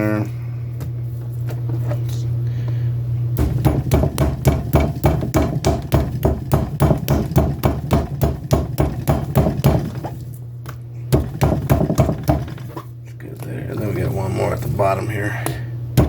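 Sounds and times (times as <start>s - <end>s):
glass pounding meat: 3.4s - 10.0s, 11.1s - 12.6s.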